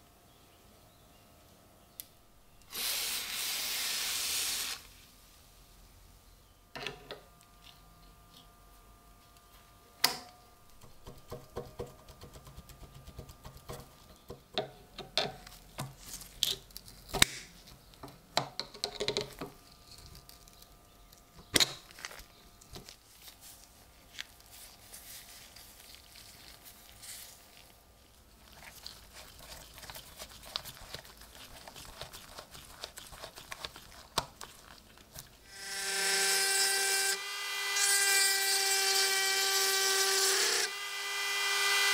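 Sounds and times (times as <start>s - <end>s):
rotary tool whining: 35.5s - 41.9s.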